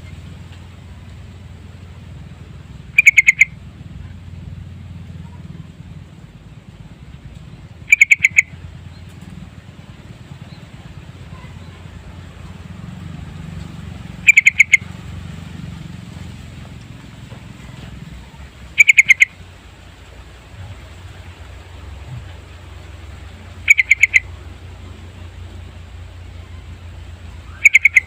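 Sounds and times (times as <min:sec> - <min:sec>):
low steady hum: 0:00.0 - 0:28.0
bird calling rapid notes: 0:02.8 - 0:04.2, 0:07.7 - 0:09.2, 0:14.1 - 0:15.0, 0:17.6 - 0:19.5, 0:22.3 - 0:25.6, 0:27.2 - 0:28.0.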